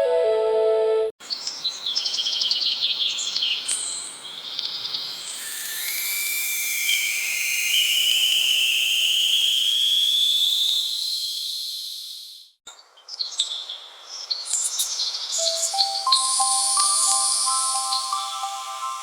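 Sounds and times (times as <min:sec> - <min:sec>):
insect-like hiss: 0:03.4 - 0:12.6, 0:14.5 - 0:19.0
whistling tone rising: 0:05.1 - 0:12.3, 0:15.4 - 0:19.0
short chirps and clicks: 0:15.4 - 0:18.8.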